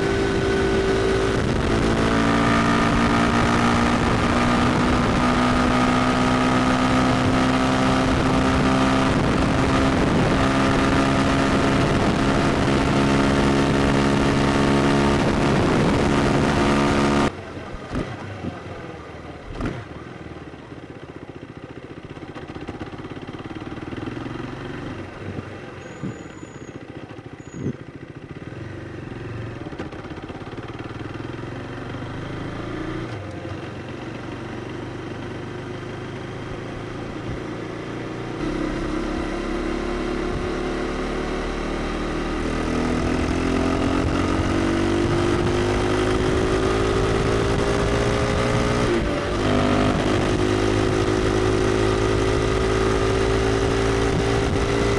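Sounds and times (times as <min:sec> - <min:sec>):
motorcycle engine high revs: 0:00.0 - 0:17.3, 0:36.2 - 0:54.9.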